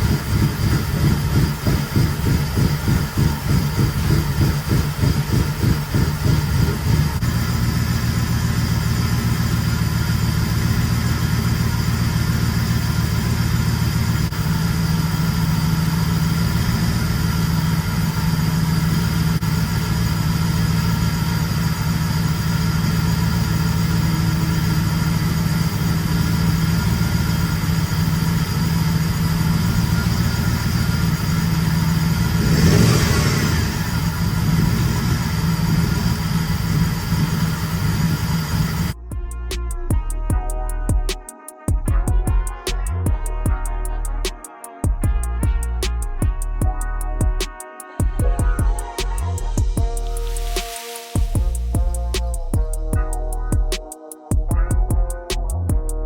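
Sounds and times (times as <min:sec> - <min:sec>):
car engine idling: 0:00.0 - 0:39.6.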